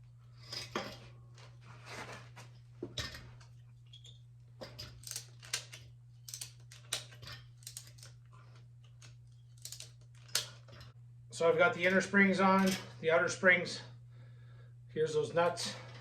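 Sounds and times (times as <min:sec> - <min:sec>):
steady low hum: 0:00.0 - 0:16.0
metal parts clinking: 0:03.0 - 0:10.9, 0:12.6 - 0:13.0.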